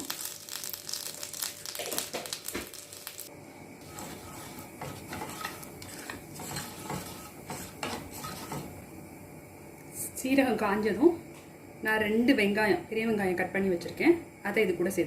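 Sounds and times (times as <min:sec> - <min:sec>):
seeds sizzling in hot oil: 0:00.0 - 0:09.4.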